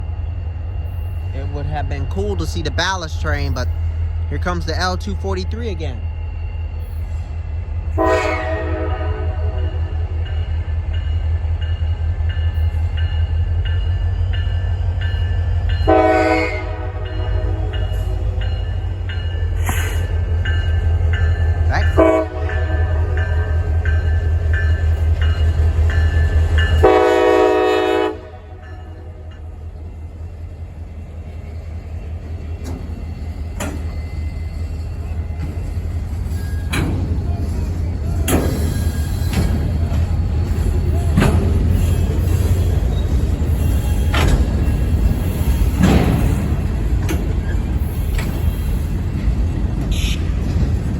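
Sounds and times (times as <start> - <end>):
diesel locomotive engine rumble: 0.0 - 50.9
locomotive air horn blast: 8.0 - 9.8, 15.9 - 17.8, 21.9 - 23.2, 26.8 - 28.6, 49.9 - 50.3.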